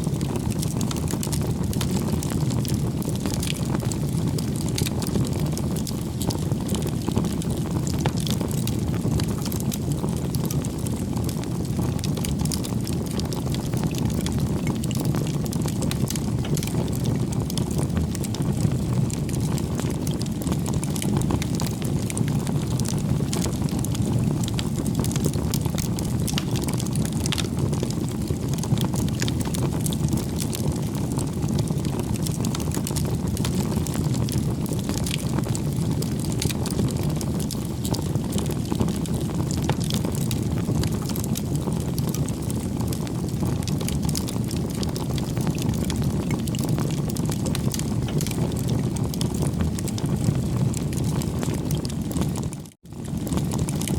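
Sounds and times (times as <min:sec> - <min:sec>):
wood fire crackling: 0:00.1 - 0:53.9.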